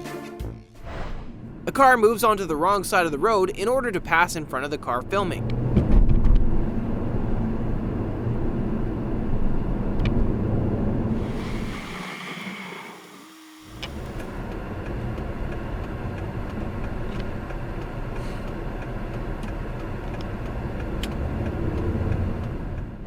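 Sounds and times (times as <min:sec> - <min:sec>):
vehicle and road noise: 0:05.0 - 0:23.0.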